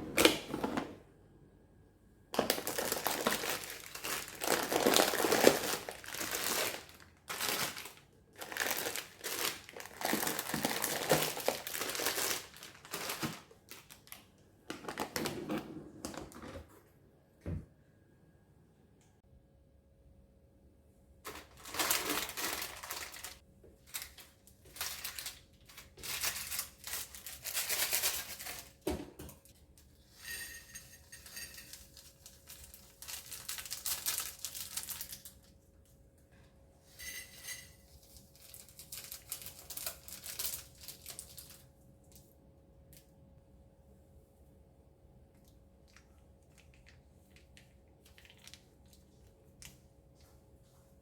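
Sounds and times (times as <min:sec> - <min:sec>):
packaging crinkling: 0:02.4 - 0:15.3, 0:21.3 - 0:28.8, 0:31.7 - 0:35.5, 0:38.0 - 0:41.7, 0:48.0 - 0:49.0.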